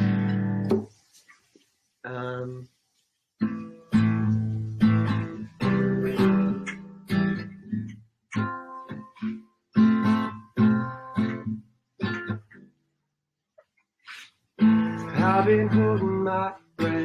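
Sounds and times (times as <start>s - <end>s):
acoustic guitar strumming chords: 0.0s - 1.0s, 3.4s - 12.8s, 14.6s - 17.0s.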